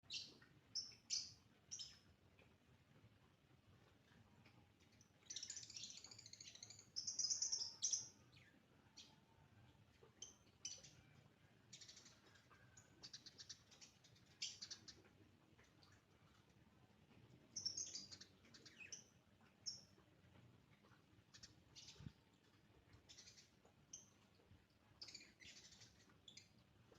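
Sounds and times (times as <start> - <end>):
sparrow chirping: 0.0 - 2.1, 5.2 - 9.2, 10.2 - 11.0, 11.7 - 15.1, 17.4 - 20.0, 25.0 - 26.6.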